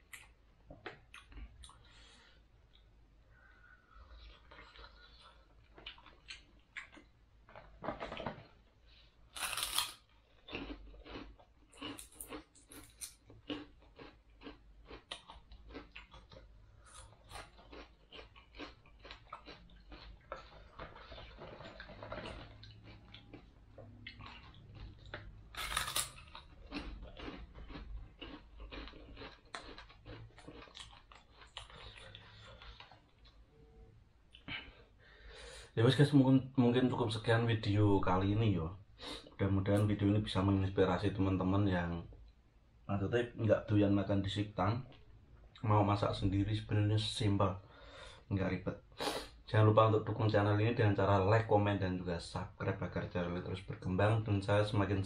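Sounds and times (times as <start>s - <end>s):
person crunching fried fish: 9.3s - 33.4s.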